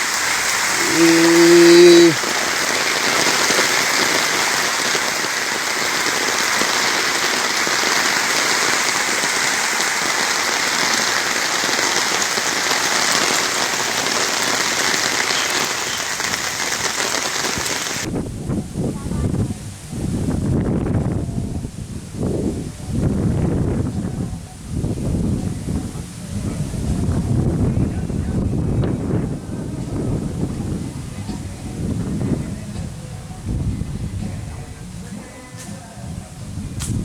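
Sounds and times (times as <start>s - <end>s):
steady rain falling: 0.0s - 18.1s.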